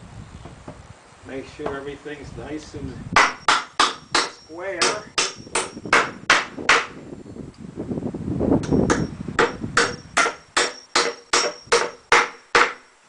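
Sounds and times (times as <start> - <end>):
hammer driving nails into wood: 3.2 - 7.0, 8.6 - 12.8.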